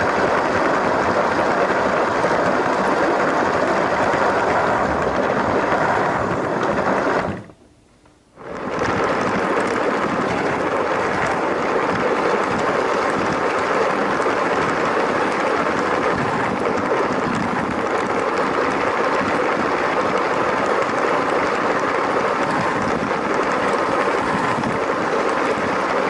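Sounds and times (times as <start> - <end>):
toy train motor whirring: 8.5 - 26.0.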